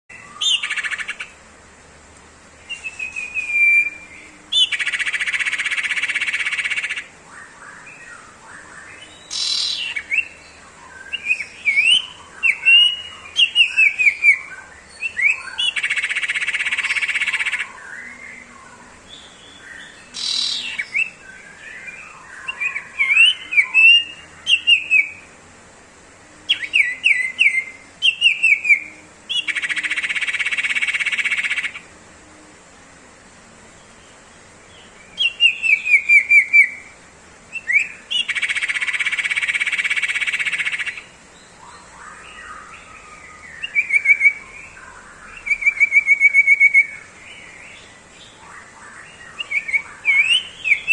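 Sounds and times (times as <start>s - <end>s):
bird sharp chirps: 8.8s - 18.1s, 19.3s - 25.2s.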